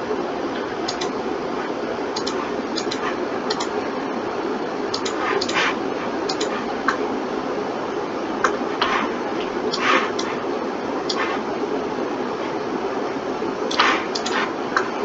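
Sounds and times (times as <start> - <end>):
computer fan hum: 0.0 - 15.0
mouse clicks: 0.9 - 1.1, 2.2 - 3.7, 4.9 - 7.0, 13.7 - 14.9
keyboard keystrokes: 2.2 - 3.7, 4.9 - 5.6, 6.3 - 7.0.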